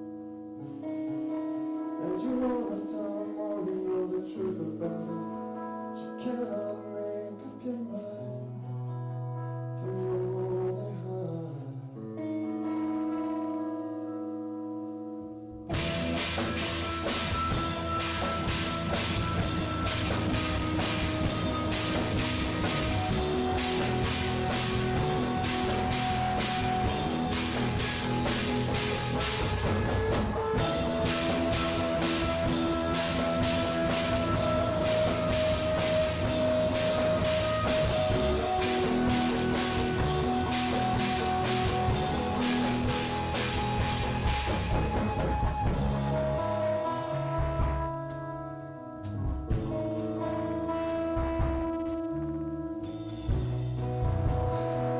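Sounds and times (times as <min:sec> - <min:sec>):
live rock band playing: 0:12.2 - 0:54.9
drum and cymbal hits: 0:15.8 - 0:46.3.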